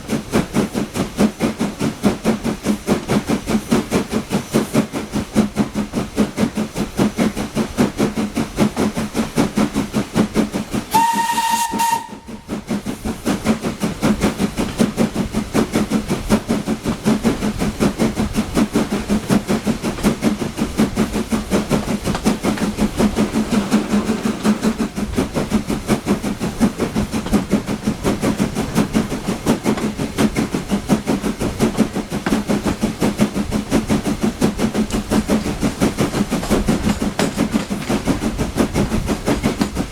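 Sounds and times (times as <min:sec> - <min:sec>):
steam locomotive exhaust beating: 0:00.0 - 0:39.9
steam locomotive whistle: 0:10.9 - 0:12.5.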